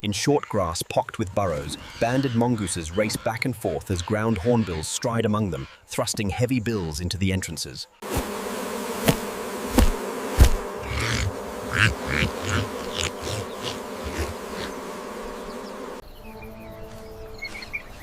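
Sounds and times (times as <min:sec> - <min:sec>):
insects buzzing: 0:07.9 - 0:18.0.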